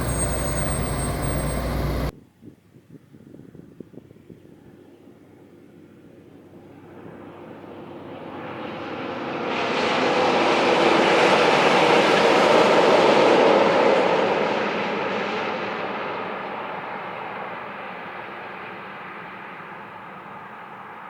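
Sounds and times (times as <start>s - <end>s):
heavy truck driving past: 0.0s - 2.1s.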